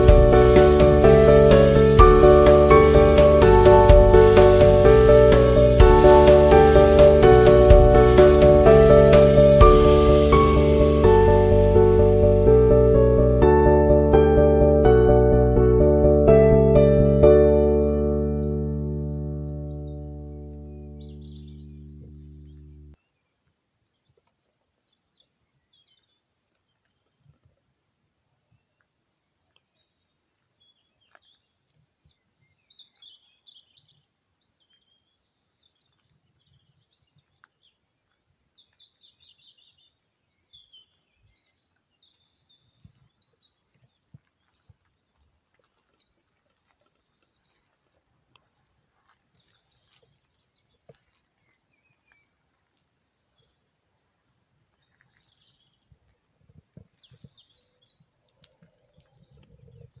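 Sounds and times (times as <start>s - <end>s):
small birds chirping: 0.0s - 17.1s, 18.2s - 60.0s
faint low rumble: 0.0s - 22.9s.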